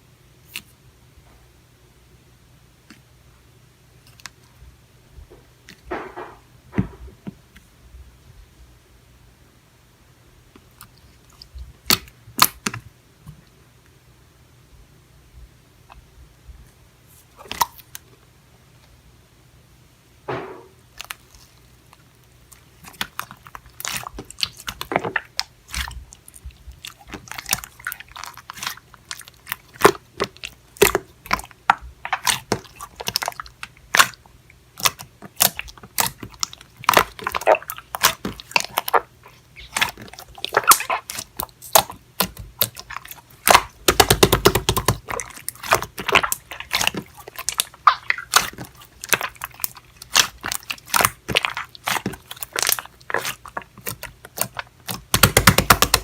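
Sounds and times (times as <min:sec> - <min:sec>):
crunching and chewing: 0:17.1 - 0:18.1, 0:20.9 - 0:56.0.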